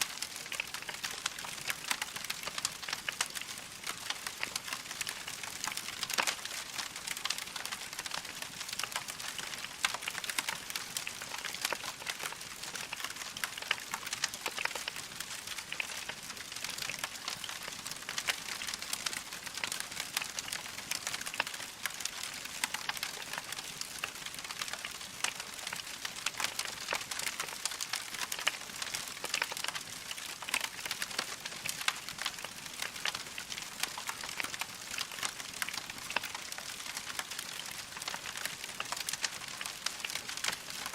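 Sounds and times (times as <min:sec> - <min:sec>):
logs crackling in fireplace: 0:00.0 - 0:40.9.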